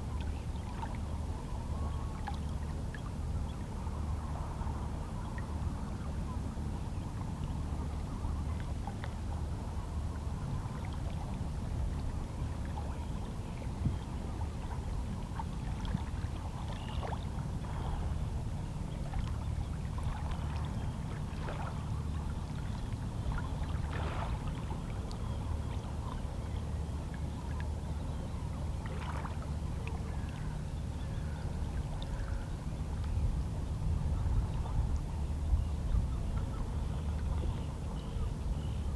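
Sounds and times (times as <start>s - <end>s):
water splashes: 19.0s - 25.2s, 28.8s - 30.4s.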